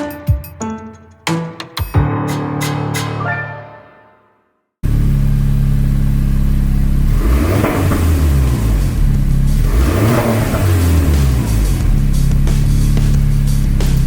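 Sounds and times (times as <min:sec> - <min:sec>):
car engine idling and revving: 0:04.8 - 0:14.0.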